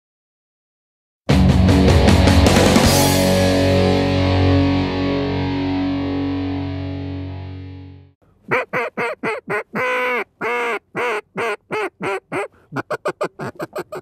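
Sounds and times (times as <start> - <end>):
duck call quacks: 8.5 - 14.0.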